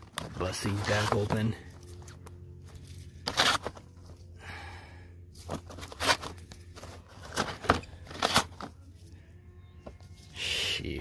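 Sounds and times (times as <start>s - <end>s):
cardboard box tearing: 3.2s - 3.8s, 5.5s - 6.4s, 7.1s - 8.7s.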